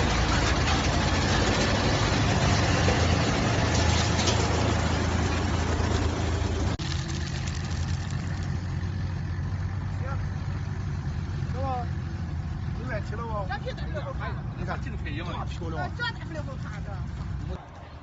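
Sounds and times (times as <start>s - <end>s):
rough noisy clatter: 0.0s - 8.6s
wood chipper humming: 0.0s - 11.4s.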